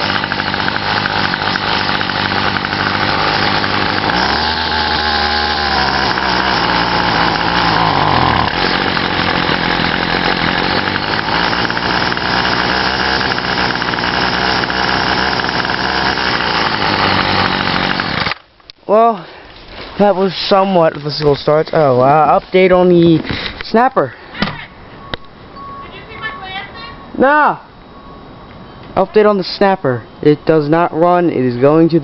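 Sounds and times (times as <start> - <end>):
string trimmer engine running: 0.0 - 18.4.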